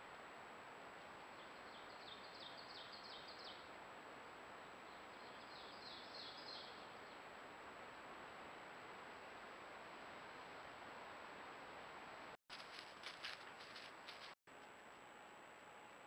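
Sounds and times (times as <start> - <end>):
songbird singing: 0.9 - 3.8, 4.5 - 7.5
faint high whine: 13.8 - 16.0.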